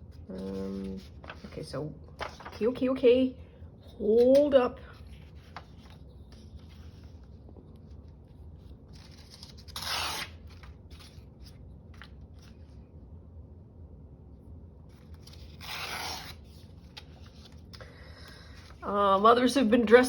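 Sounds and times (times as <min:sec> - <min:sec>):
paper rustling: 0:00.1 - 0:03.0, 0:03.9 - 0:12.8, 0:14.9 - 0:19.2.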